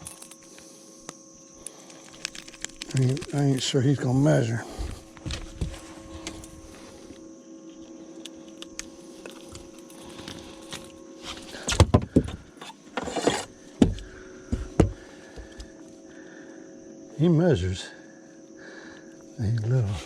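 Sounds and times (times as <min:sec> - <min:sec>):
faint steady hum: 0:00.0 - 0:20.0
knocks and thumps against boat: 0:11.7 - 0:12.4, 0:13.0 - 0:15.6.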